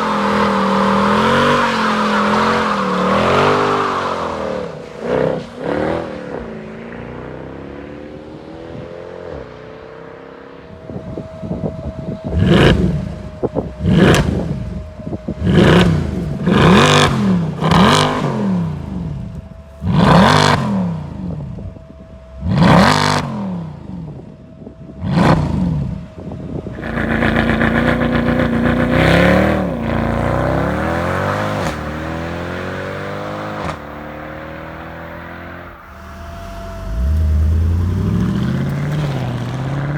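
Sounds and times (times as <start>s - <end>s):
car engine idling and revving: 0.0s - 39.9s
engine hiss: 35.7s - 39.3s.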